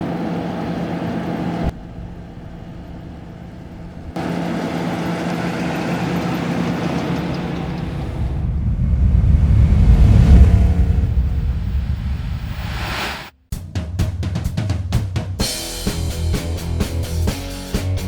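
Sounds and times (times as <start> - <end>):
car engine idling: 0.0 - 12.5.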